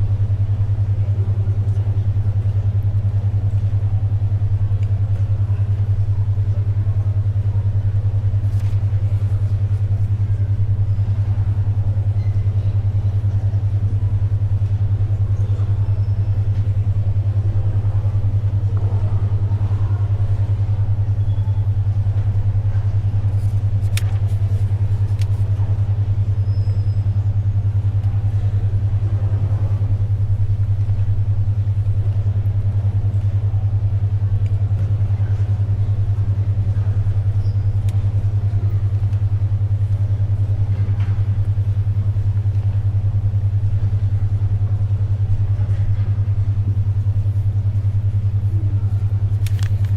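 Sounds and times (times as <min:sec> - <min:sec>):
library background noise: 0:00.0 - 0:49.9
low pulsing hum tone: 0:00.0 - 0:49.9
paper and pencil sounds: 0:23.4 - 0:25.5, 0:49.4 - 0:49.9.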